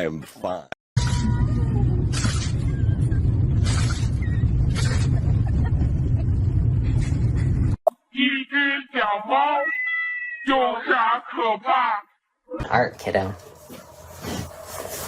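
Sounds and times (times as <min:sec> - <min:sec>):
low rumble: 0:01.0 - 0:07.8.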